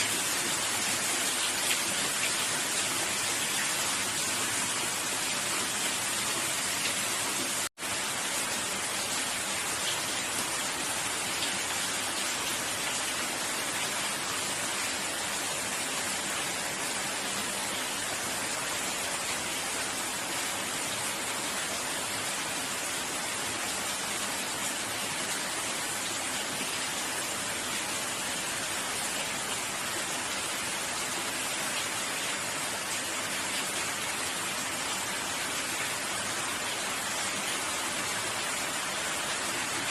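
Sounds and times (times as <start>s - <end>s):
dense rainfall hiss: 0.0s - 39.9s.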